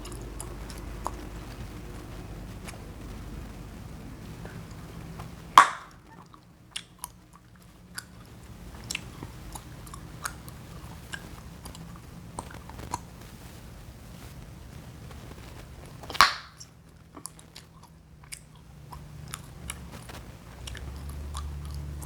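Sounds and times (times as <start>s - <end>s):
gum chewing and popping: 0.0s - 3.6s, 4.2s - 13.2s, 15.3s - 22.0s.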